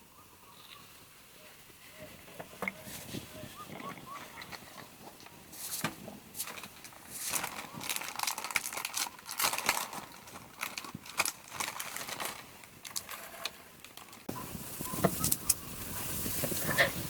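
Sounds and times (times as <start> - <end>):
background noise: 0.0 - 17.0
light clicks and crackles: 3.7 - 15.6.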